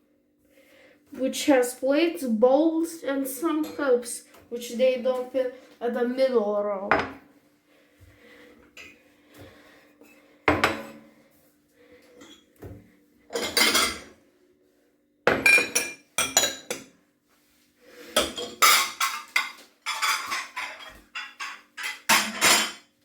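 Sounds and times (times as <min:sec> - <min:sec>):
dishes clattering and clinking: 0:06.9 - 0:07.2, 0:10.1 - 0:11.1, 0:12.2 - 0:14.1, 0:15.3 - 0:16.9, 0:18.1 - 0:22.9.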